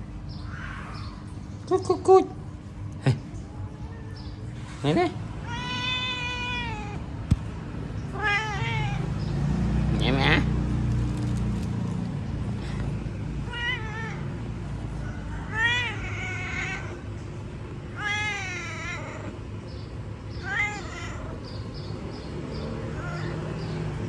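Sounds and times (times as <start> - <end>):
cat meowing: 5.4 - 7.0, 8.0 - 9.2, 13.4 - 14.4, 15.4 - 17.0, 18.0 - 19.4, 20.4 - 21.6, 22.9 - 23.5.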